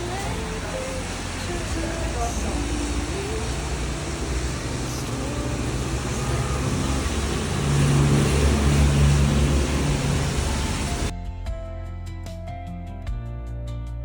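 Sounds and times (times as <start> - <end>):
low engine drone: 0.0 - 11.1
tyre and road noise: 0.0 - 11.1.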